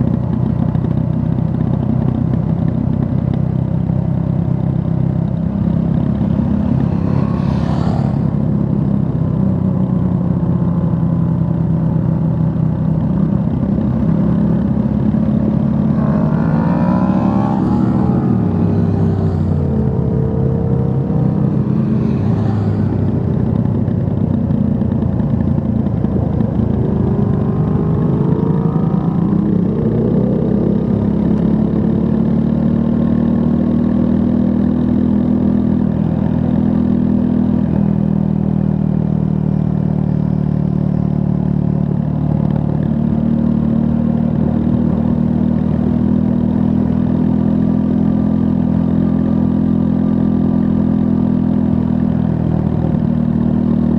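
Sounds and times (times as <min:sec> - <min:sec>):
motorcycle engine revving: 0:00.0 - 0:41.2.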